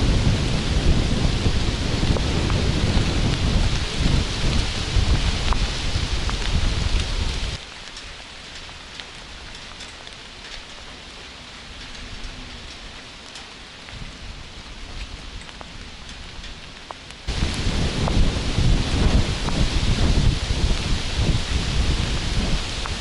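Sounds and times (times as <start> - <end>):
low rumble of thunder: 0.0 - 7.6, 13.9 - 23.0
steady rain: 0.0 - 23.0.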